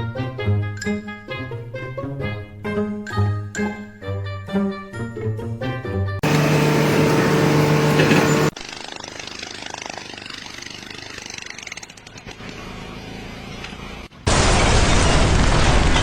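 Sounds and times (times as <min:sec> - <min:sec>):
loud engine humming: 0:06.2 - 0:08.6.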